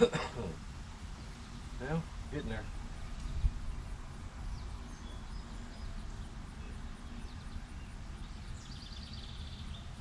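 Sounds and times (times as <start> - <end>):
faint bird chirps: 1.1 - 10.0
bird trill: 2.5 - 10.0.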